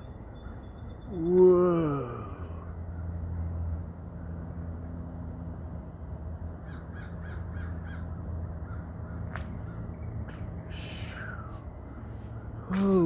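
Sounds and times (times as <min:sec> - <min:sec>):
steady low rumble: 0:02.0 - 0:13.0
crows cawing: 0:06.7 - 0:09.8.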